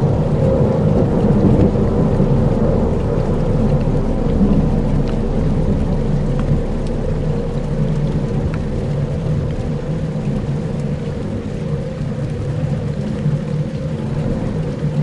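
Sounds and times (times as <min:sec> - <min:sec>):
rain and thunder-like wash: 0:00.0 - 0:15.0
steady low rumble: 0:00.0 - 0:15.0
faint ticks: 0:02.9 - 0:15.0.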